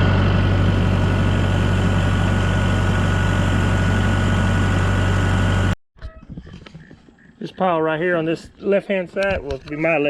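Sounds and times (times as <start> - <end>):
engine humming with whine: 0.0 - 5.8.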